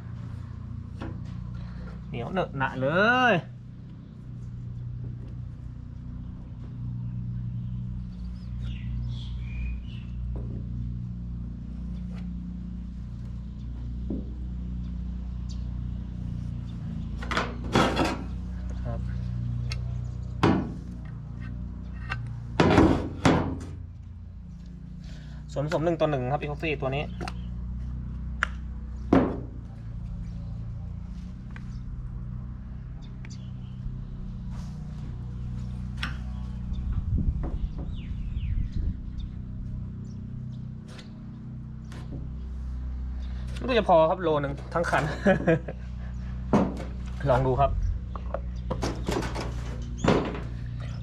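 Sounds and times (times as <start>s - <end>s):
low mechanical hum: 0.0s - 51.0s
bird chirping: 7.0s - 10.8s, 32.8s - 34.4s, 36.2s - 42.6s
loud thump: 29.1s - 29.6s.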